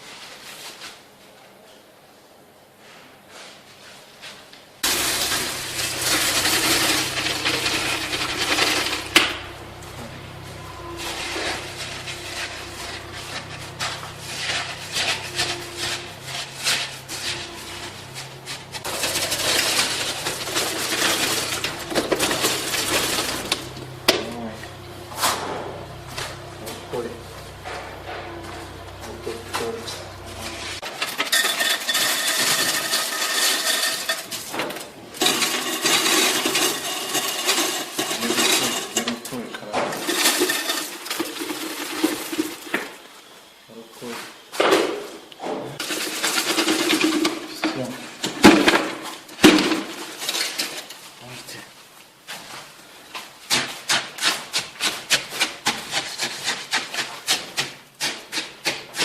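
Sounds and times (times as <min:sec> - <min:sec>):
hand tools scraping and clinking: 0:04.8 - 0:42.8, 0:45.8 - 0:51.6
hand tool rasping on hard surface: 0:10.8 - 0:23.4.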